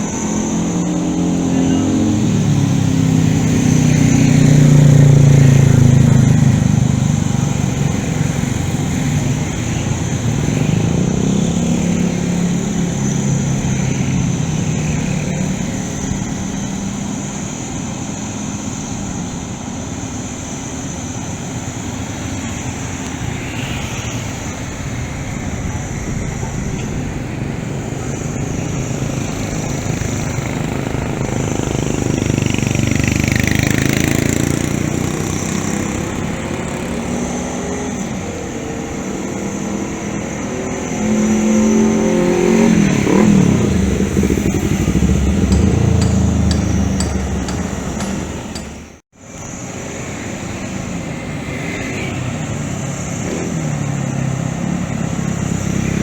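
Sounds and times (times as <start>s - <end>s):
high whine rising and falling: 42.8s - 49.0s
excavator diesel engine running: 43.1s - 49.0s.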